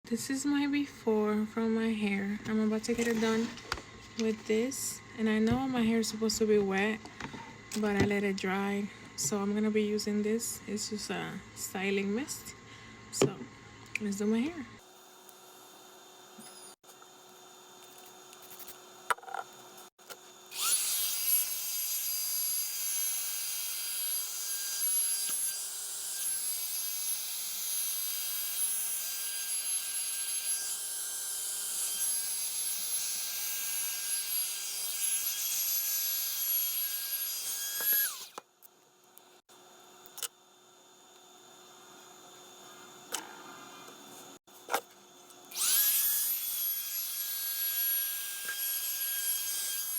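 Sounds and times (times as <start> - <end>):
hair dryer motor whining: 20.6 - 21.0, 37.6 - 38.4, 45.5 - 46.0.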